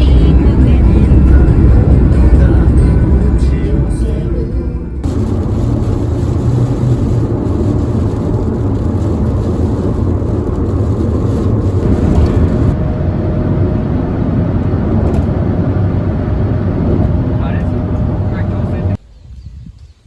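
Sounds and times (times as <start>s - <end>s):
vehicle rumble: 0.0s - 19.1s.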